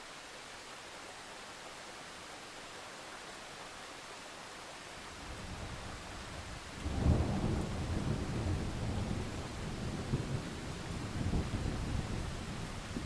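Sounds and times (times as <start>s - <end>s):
steady rain: 0.0s - 13.0s
rolling thunder: 6.8s - 13.0s.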